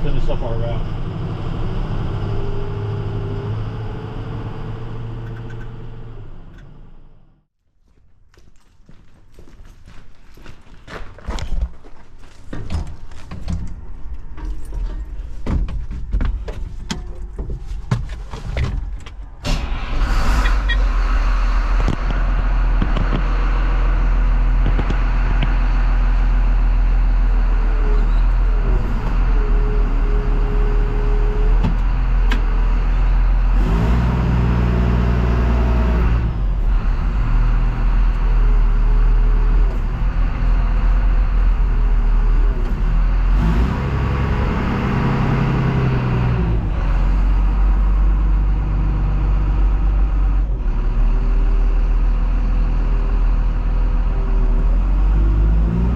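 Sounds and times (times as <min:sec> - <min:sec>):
road noise: 0:00.0 - 0:07.5, 0:08.2 - 0:55.9
truck engine driving: 0:00.0 - 0:07.5, 0:12.4 - 0:55.9
sharp clicks and knocks: 0:22.8 - 0:23.4, 0:24.6 - 0:25.7.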